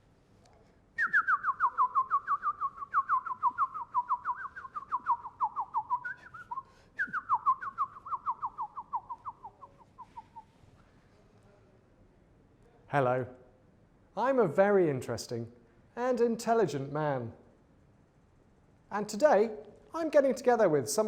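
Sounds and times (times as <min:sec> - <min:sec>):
bird whistling song: 0:01.0 - 0:10.6.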